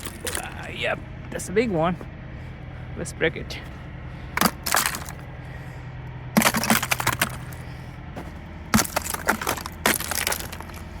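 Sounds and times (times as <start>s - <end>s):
icicles cracking and shattering: 4.4s - 5.3s, 6.4s - 7.6s, 8.7s - 11.0s.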